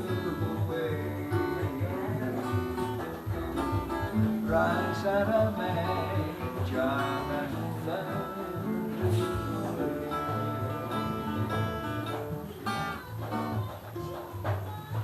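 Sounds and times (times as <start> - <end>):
strummed acoustic guitar music: 0.0 - 15.0.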